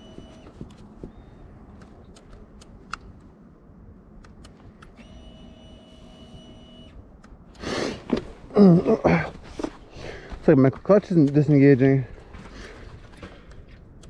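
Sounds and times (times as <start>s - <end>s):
electric starter whine: 0.0s - 2.8s, 4.2s - 8.5s.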